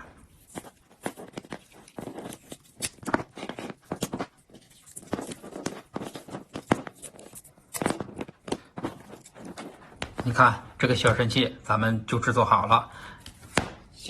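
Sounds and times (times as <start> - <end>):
handling noises: 0.3 - 11.2.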